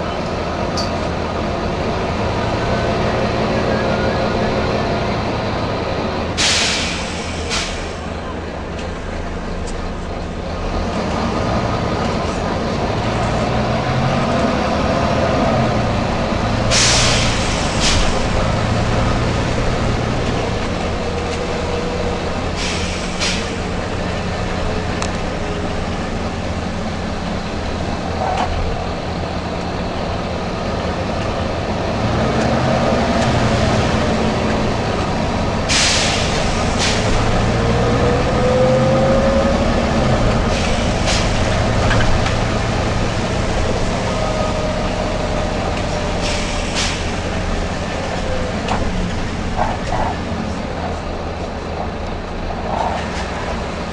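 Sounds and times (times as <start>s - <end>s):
bus diesel engine running: 0.0s - 53.9s
short sharp air hisses: 6.4s - 8.0s, 16.7s - 18.2s, 22.6s - 23.6s, 35.7s - 37.1s, 46.2s - 47.2s.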